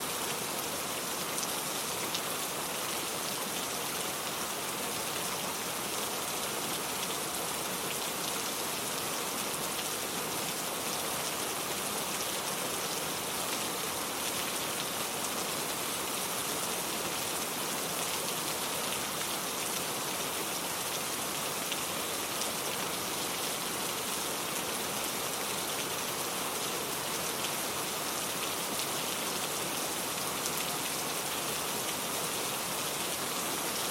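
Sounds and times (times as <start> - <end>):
steady rain falling: 0.0 - 33.9.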